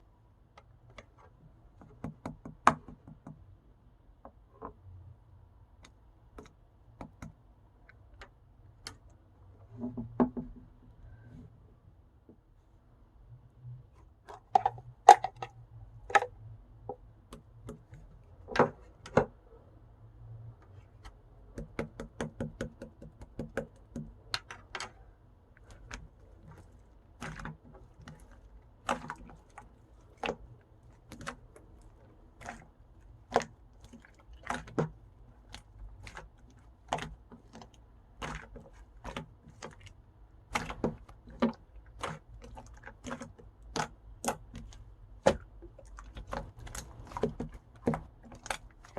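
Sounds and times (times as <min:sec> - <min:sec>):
slime crackles: 0:25.6 - 0:48.9.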